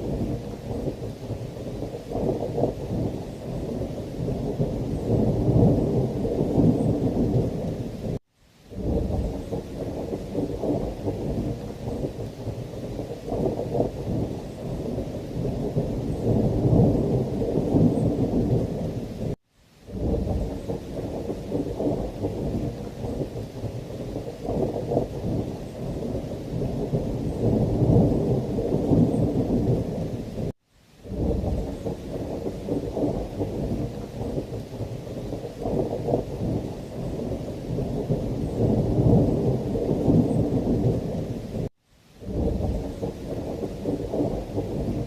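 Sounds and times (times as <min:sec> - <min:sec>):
heavy rain: 0:00.0 - 0:45.0
rolling thunder rumble: 0:00.0 - 0:45.0.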